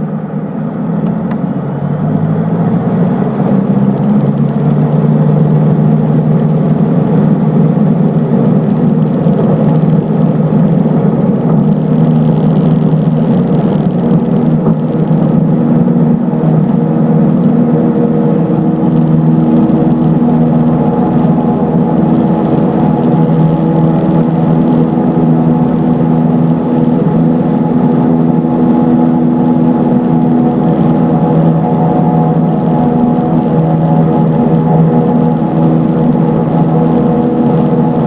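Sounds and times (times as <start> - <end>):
light aircraft engine drone: 0.0 - 38.0.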